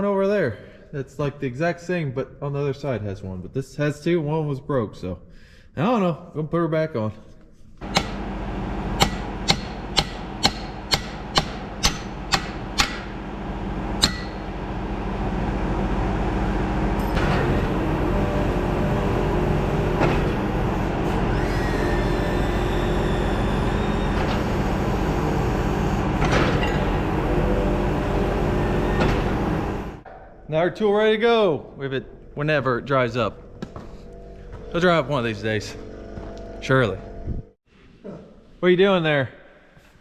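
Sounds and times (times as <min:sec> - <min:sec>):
hammer blows on metal: 0:07.8 - 0:08.2, 0:09.0 - 0:13.2, 0:14.0 - 0:14.5
steady mechanical running noise: 0:07.8 - 0:30.0.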